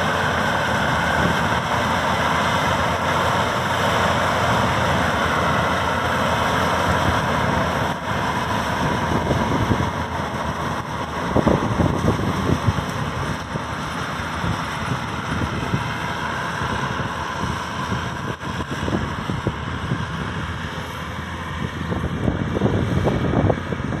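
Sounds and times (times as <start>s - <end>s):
combine harvester running: 0.0s - 24.0s.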